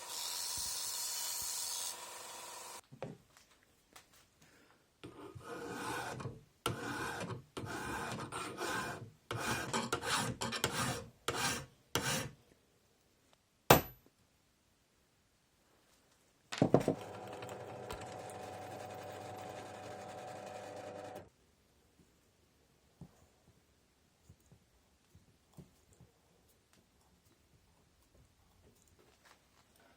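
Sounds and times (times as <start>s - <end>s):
small power tool motor humming: 0.0s - 2.8s
file scraping: 5.0s - 12.4s.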